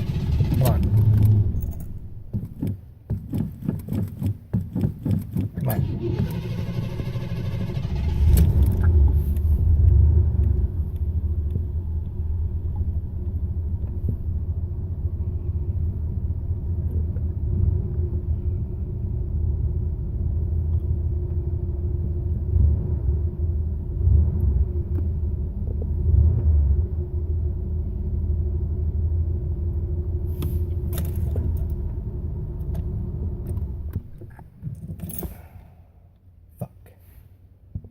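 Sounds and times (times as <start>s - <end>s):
car engine rumbling: 0.0s - 37.9s.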